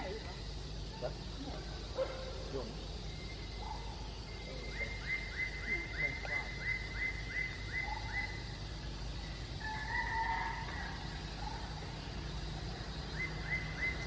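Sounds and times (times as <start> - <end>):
low outdoor background hum: 0.0 - 14.0.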